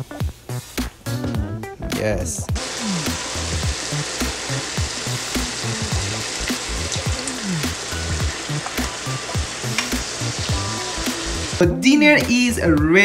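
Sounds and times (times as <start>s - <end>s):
background music with bass: 0.0s - 13.0s
fish sizzling in a pan: 2.6s - 11.6s
sauce being poured: 2.6s - 11.6s.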